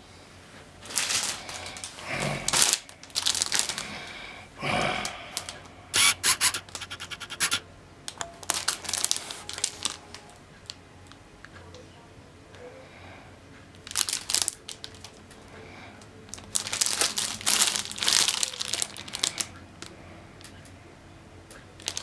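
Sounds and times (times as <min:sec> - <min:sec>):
packaging rustling and scraping: 0:00.8 - 0:03.9, 0:05.4 - 0:07.6, 0:08.4 - 0:10.3, 0:16.3 - 0:19.5
fast run of clicks: 0:06.0 - 0:07.6.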